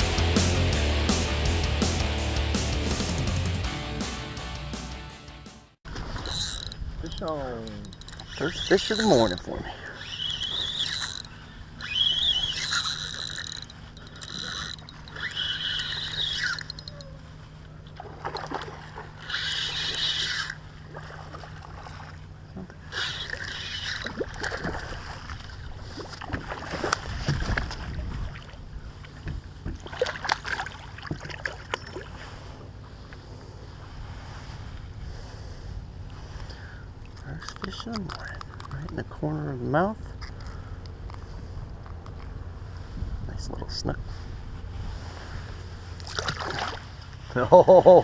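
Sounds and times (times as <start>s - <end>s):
fishing reel cranking: 6.2s - 17.1s, 19.2s - 20.6s
water splashing: 17.9s - 29.2s, 29.8s - 32.2s, 46.0s - 47.2s.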